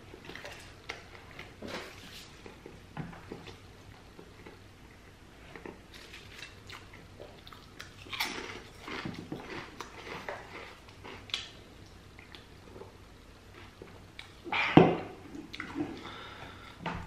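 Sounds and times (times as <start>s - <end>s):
chewing crackles: 2.4s - 14.4s
potato chips crunching: 5.9s - 11.6s.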